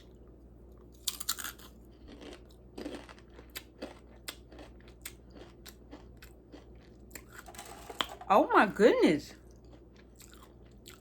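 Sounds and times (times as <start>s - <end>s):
person crunching chips: 0.9s - 7.5s, 9.5s - 11.0s.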